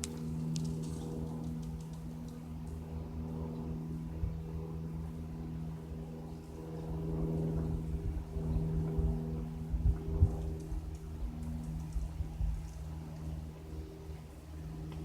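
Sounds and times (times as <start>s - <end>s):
light aircraft engine droning: 0.0s - 15.0s.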